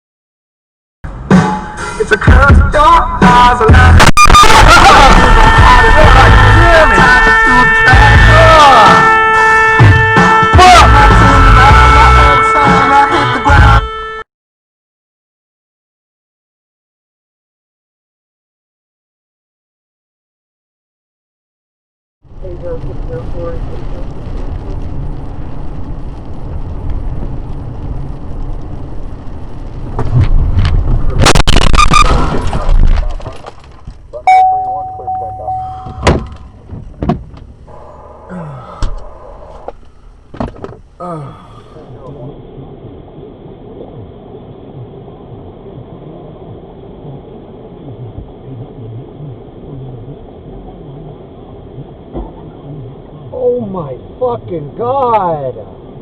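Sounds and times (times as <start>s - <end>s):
car road rumble: 1.1s - 14.2s, 22.2s - 56.0s
loud crash: 3.2s - 8.4s, 31.0s - 33.4s
high tone: 34.2s - 36.6s.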